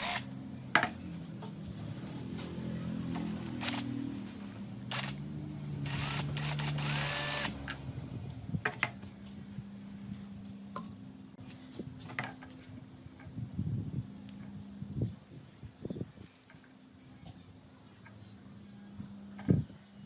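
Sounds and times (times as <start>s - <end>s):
electric drill whining: 0.0s - 0.2s, 3.6s - 3.9s, 4.9s - 5.2s, 5.8s - 7.7s.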